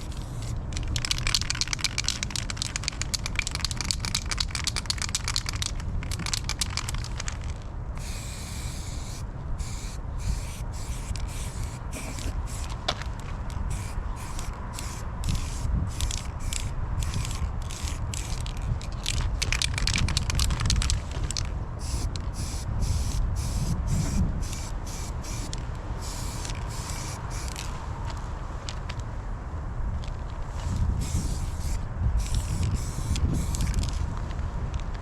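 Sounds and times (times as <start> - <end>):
aerosol spray can hissing: 8.0 - 12.8, 13.7 - 18.5, 21.8 - 27.6, 31.0 - 33.9.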